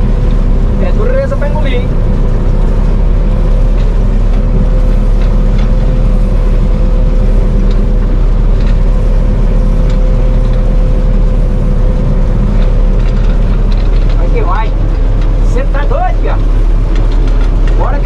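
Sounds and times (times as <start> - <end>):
combine harvester drone: 0.0 - 18.0.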